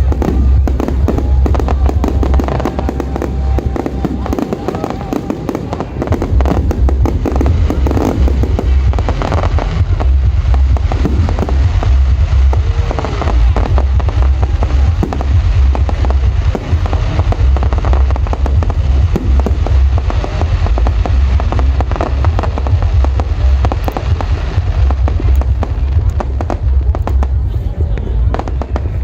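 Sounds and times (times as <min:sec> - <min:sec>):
fireworks bangs and crackling: 0:00.0 - 0:29.0
heavy low rumble: 0:00.0 - 0:29.0.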